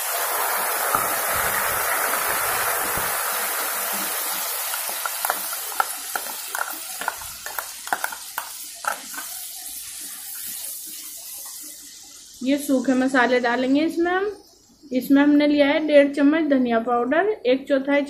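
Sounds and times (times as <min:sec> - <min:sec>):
paste sizzling in hot oil: 0:00.0 - 0:13.6
spatula scraping into pan: 0:03.9 - 0:10.8.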